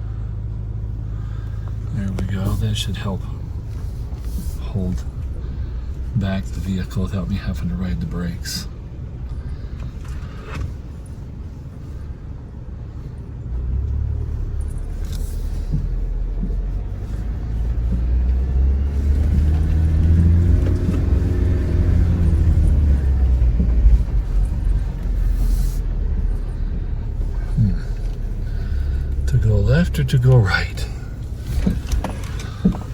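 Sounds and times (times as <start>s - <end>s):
truck engine rumbling: 0.0s - 32.9s.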